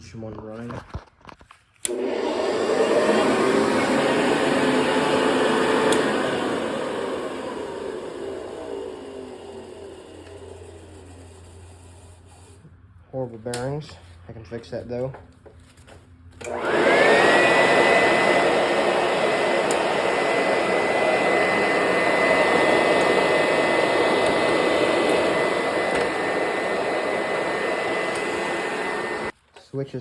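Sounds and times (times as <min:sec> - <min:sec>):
vacuum cleaner motor whining: 0:01.8 - 0:12.5, 0:16.4 - 0:29.4.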